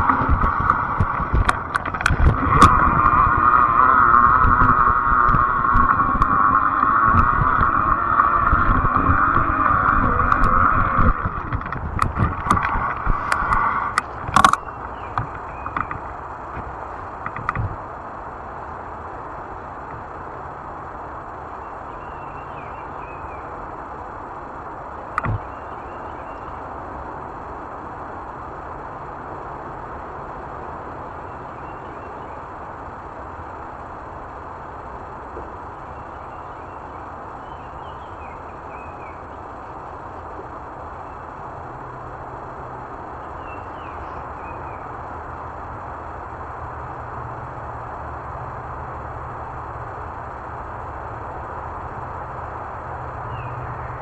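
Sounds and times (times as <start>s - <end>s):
tyres rolling: 0.0s - 14.6s
wind on microphone: 0.0s - 18.3s, 25.2s - 25.5s
low steady hum: 0.0s - 54.0s
road and wind noise: 0.0s - 54.0s.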